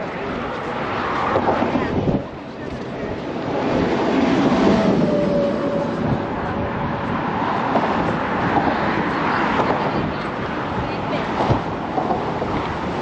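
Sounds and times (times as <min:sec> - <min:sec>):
vehicle passing by: 0:02.8 - 0:11.4.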